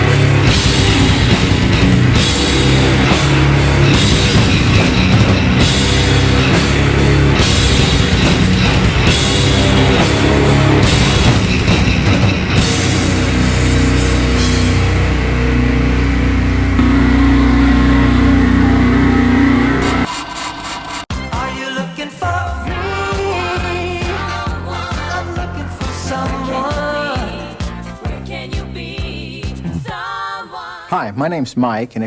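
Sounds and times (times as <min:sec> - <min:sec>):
distorted guitar chord ringing: 0:00.0 - 0:21.0
heavy metal band playing: 0:00.0 - 0:21.5
drum kit: 0:00.0 - 0:29.7.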